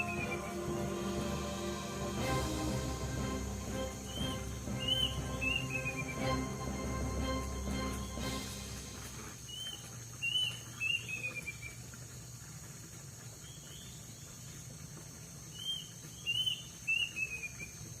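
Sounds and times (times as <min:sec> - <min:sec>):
bird chirping: 0:03.0 - 0:11.7.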